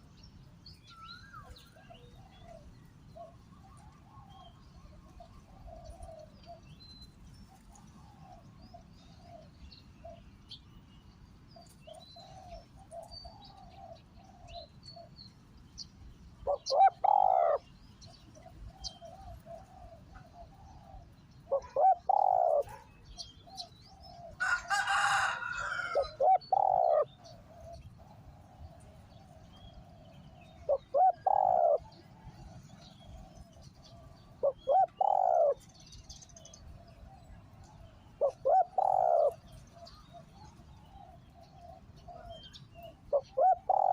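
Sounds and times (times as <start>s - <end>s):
small birds chirping: 0.0s - 43.9s
dove cooing: 1.4s - 6.8s, 11.6s - 15.2s, 16.4s - 43.9s.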